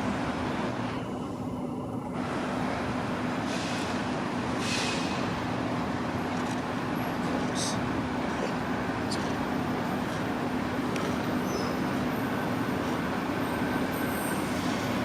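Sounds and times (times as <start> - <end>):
mechanical hum and rumble: 0.0 - 15.0
brief high hiss: 4.6 - 5.2
short hissing bursts: 4.6 - 5.2.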